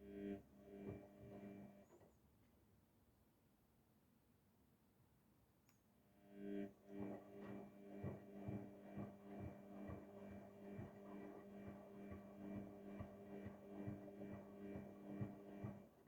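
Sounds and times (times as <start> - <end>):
washing machine motor hum: 0.0 - 2.0, 6.2 - 16.0
soft rhythmic drum thumps: 7.0 - 16.0.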